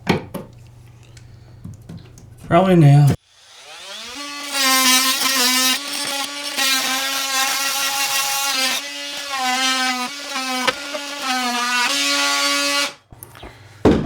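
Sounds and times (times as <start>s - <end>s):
electric power saw whining: 3.1s - 13.0s.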